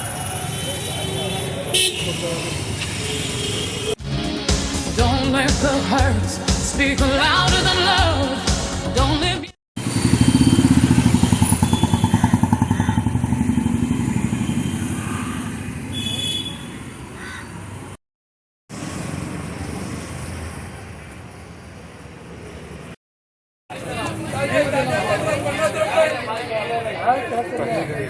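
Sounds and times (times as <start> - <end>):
steady traffic noise: 0.0 - 4.0, 9.8 - 18.0, 18.7 - 23.0, 23.7 - 28.0
motorcycle engine running: 9.8 - 15.4.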